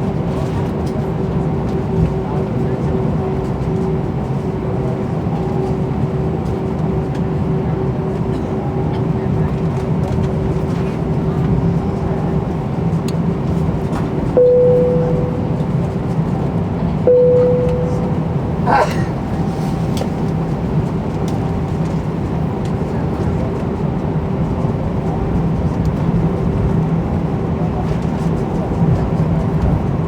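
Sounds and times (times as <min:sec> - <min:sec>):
airplane cabin rumble: 0:00.0 - 0:30.0
chime tones: 0:14.4 - 0:15.8, 0:17.1 - 0:18.8.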